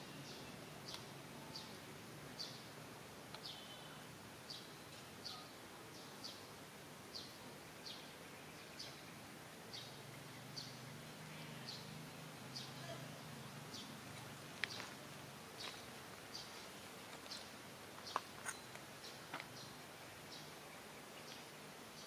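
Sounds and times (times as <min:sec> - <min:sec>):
faint background hiss: 0:00.0 - 0:22.0
bird chirping: 0:03.4 - 0:06.5, 0:07.1 - 0:15.0, 0:15.6 - 0:22.0.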